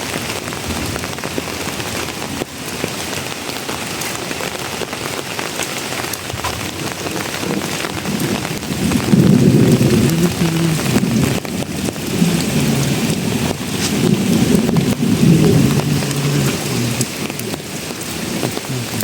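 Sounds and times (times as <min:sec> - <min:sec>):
steady rain falling: 0:00.0 - 0:19.0
low rumble: 0:06.6 - 0:19.0.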